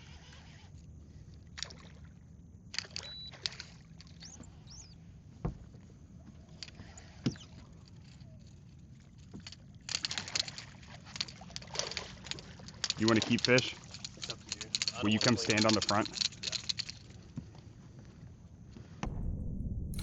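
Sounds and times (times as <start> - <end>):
knocks and clicks of handling: 9.2 - 17.0
heavy thumps: 19.0 - 20.0.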